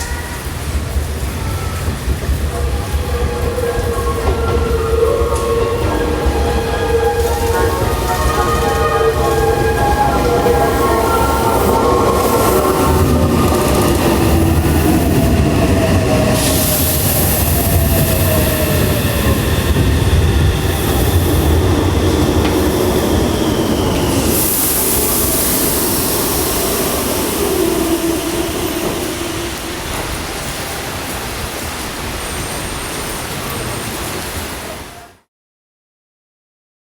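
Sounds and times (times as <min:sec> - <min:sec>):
electric train passing: 0:00.0 - 0:35.1.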